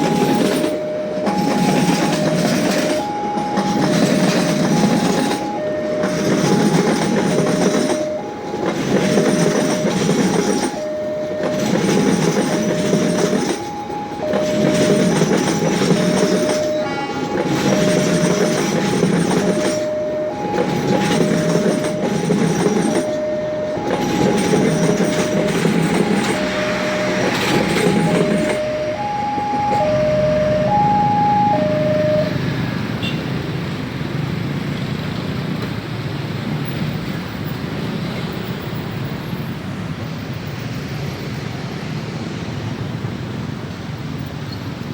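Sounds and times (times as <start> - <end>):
background din: 0.0 - 32.8
train wheels rumbling: 0.0 - 33.0
crossing warning alarm: 0.0 - 33.7.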